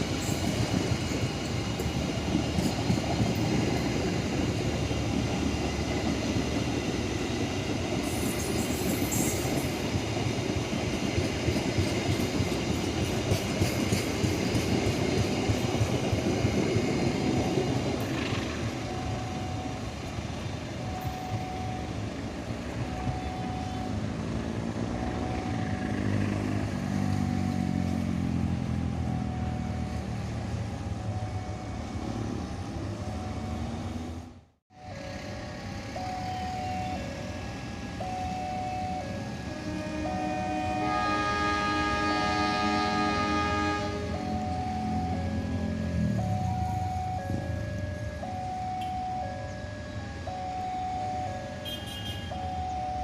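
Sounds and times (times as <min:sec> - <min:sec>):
train wheels rumbling on track: 0:00.0 - 0:50.1
engine drone: 0:16.4 - 0:53.0
short beeps: 0:18.7 - 0:20.1, 0:20.8 - 0:22.1, 0:22.8 - 0:24.0, 0:50.3 - 0:53.0.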